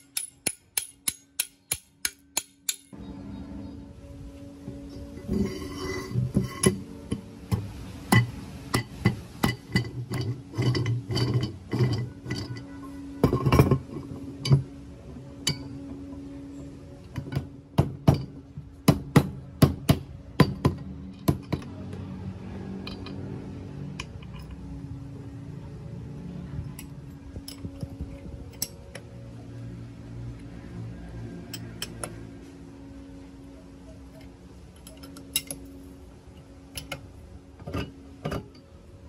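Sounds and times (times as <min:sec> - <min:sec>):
metal parts and bolts clinking: 0:00.0 - 0:03.0, 0:04.7 - 0:16.2, 0:20.4 - 0:21.8, 0:22.7 - 0:24.8, 0:26.6 - 0:29.1, 0:31.5 - 0:32.2, 0:33.9 - 0:38.9
steady low hum: 0:22.8 - 0:39.0.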